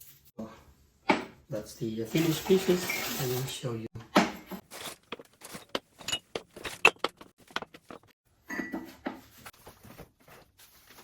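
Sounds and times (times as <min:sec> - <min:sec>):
ceramic pots clinking and knocking: 0:04.0 - 0:09.3.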